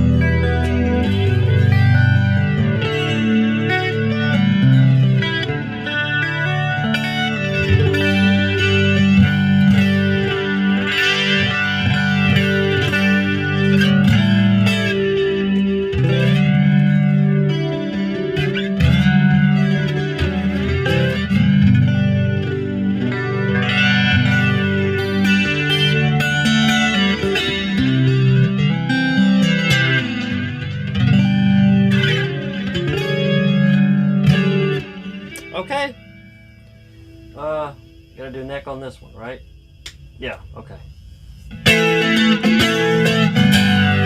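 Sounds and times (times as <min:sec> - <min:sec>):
electric guitar with chorus: 0:00.0 - 0:44.0.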